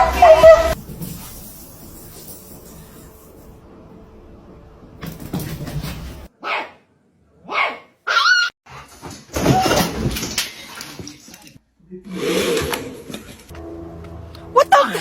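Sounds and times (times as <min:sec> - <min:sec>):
dog barking: 0:06.4 - 0:06.8, 0:07.4 - 0:08.4.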